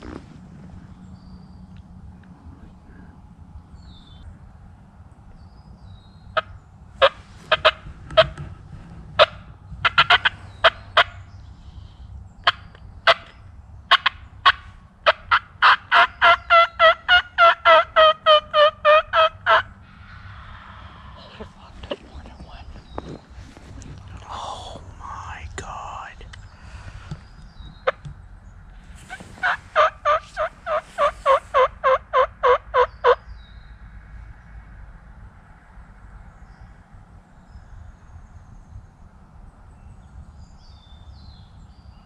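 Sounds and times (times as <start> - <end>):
turkey yelps and clucks: 6.4 - 8.3, 9.2 - 11.1, 13.9 - 19.7, 29.0 - 33.2.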